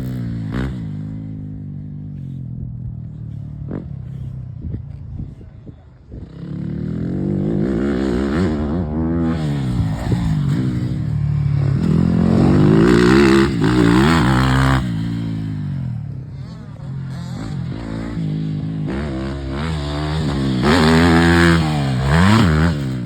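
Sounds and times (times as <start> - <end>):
motocross bike engine revving: 6.2 - 23.0.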